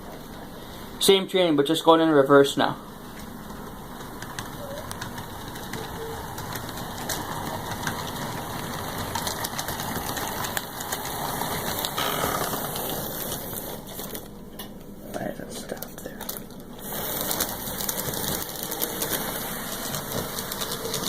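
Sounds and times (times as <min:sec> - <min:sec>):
model train wheels rattling on rails: 0:02.6 - 0:14.3, 0:16.8 - 0:21.0.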